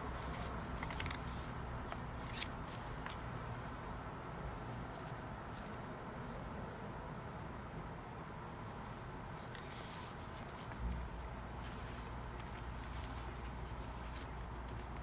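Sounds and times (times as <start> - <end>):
paper rustling: 0.0 - 3.3, 9.4 - 15.0.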